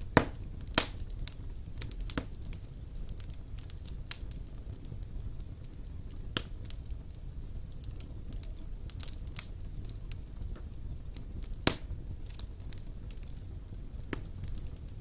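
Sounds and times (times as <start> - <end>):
fire crackling and popping: 0.0 - 15.0
fire rumbling in fireplace: 0.0 - 15.0.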